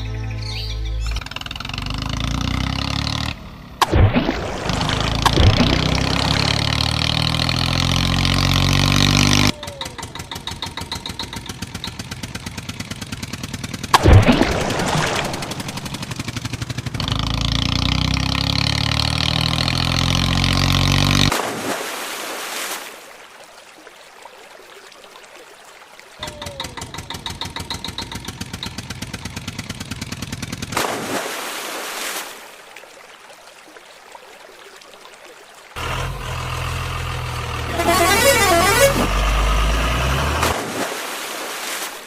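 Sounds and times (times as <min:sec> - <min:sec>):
heavy vehicle engine revving: 0:01.0 - 0:03.8, 0:04.6 - 0:21.3, 0:35.8 - 0:40.7.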